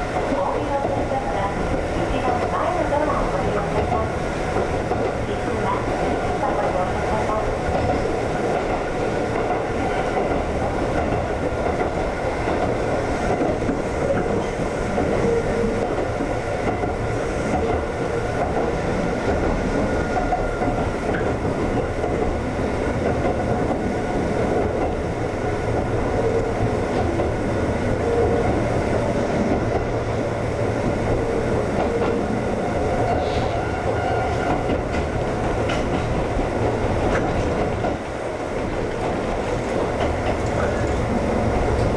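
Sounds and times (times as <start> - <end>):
train wheels rumbling on rail: 0.0 - 41.9.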